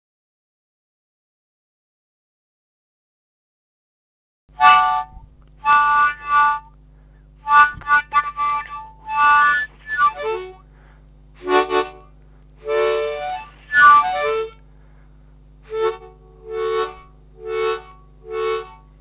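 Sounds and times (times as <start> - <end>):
low electrical hum: 4.5 - 19.0
harmonica chord blasts: 4.6 - 6.8, 7.4 - 15.0, 15.6 - 19.0.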